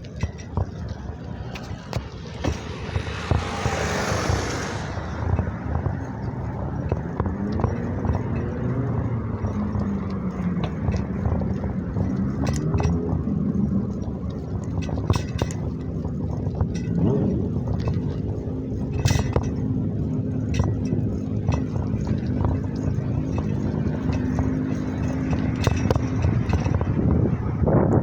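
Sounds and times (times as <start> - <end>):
vehicle engine rumbling: 0.0 - 28.0
clicks and knocks: 20.4 - 27.2.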